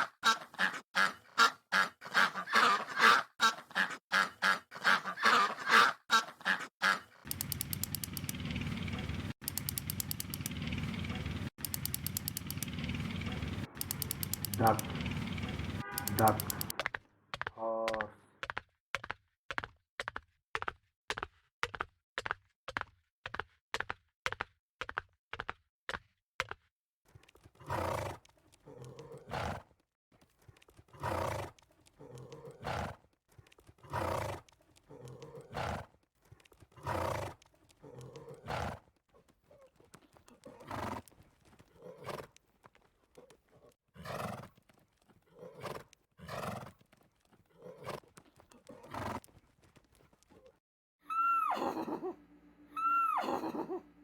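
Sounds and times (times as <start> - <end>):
horse hooves clip-clopping: 7.3 - 25.0, 30.2 - 50.5
horse neighing: 12.6 - 16.8, 51.1 - 53.9.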